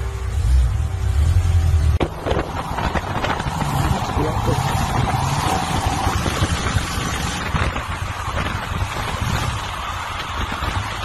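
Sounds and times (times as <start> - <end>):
car engine and exhaust running: 0.0 - 11.0
wind on microphone: 2.0 - 11.0.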